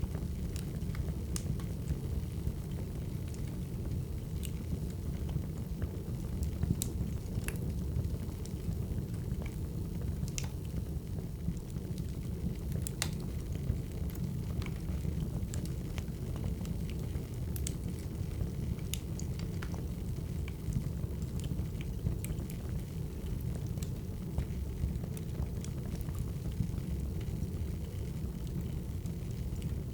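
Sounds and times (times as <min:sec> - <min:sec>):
wood fire crackling: 0:00.0 - 0:29.9.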